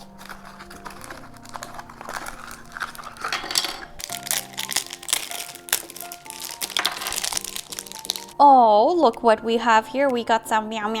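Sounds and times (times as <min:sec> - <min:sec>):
plastic packet crinkling and tearing: 0:00.0 - 0:08.4
soft background music: 0:00.0 - 0:11.0.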